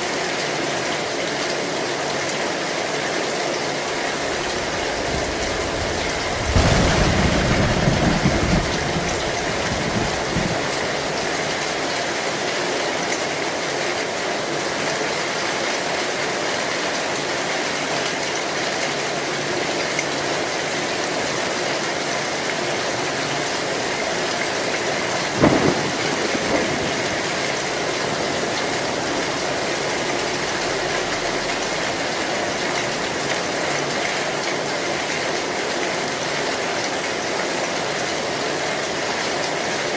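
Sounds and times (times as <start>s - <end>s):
heavy rain on a tin roof: 0.0s - 39.9s
thunder rumbling: 3.9s - 12.0s, 23.9s - 33.1s
sharp thunder crack: 4.3s - 11.8s, 25.3s - 32.0s.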